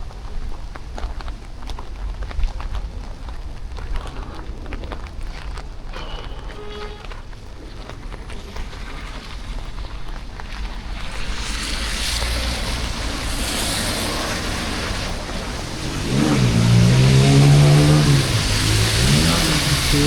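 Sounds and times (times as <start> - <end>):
rain: 0.0 - 20.0
traffic passing on wet road: 0.0 - 20.0
vehicle engine accelerating: 10.6 - 20.0.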